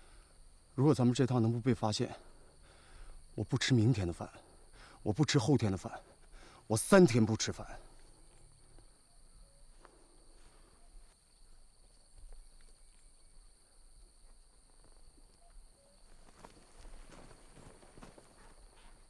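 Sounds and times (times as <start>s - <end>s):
soft ticks and rustles: 11.4s - 18.6s.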